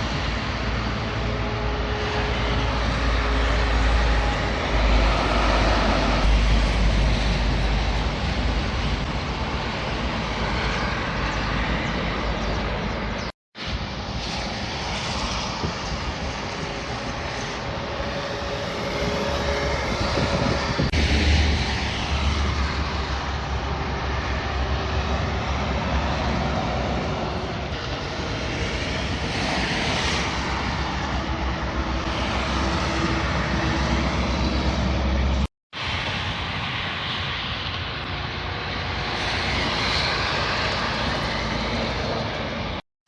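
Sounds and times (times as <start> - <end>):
heavy trucks driving past: 0.0 - 42.8
deep engine drone: 17.0 - 35.5.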